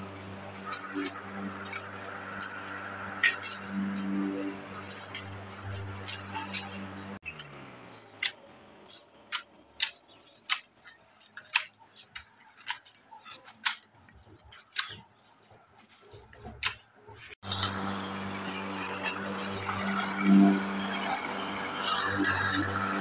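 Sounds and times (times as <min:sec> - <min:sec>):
steady hum: 0:00.0 - 0:07.2, 0:17.4 - 0:23.0
sharp clicks: 0:03.2 - 0:15.0.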